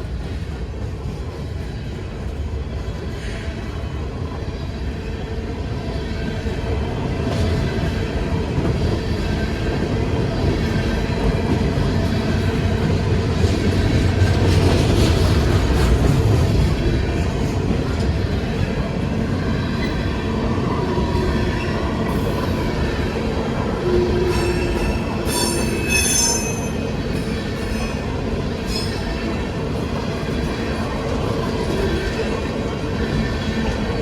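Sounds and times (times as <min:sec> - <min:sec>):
train rumbling past: 0:00.0 - 0:34.0.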